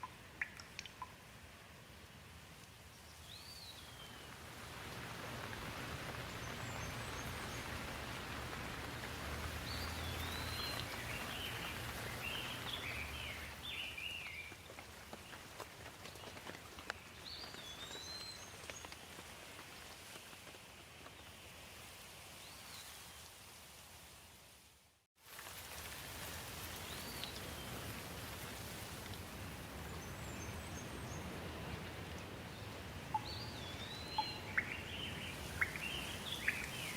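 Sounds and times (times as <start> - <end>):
steady rain falling: 0.0 - 36.9
birds chirping: 9.6 - 14.4, 33.1 - 36.9.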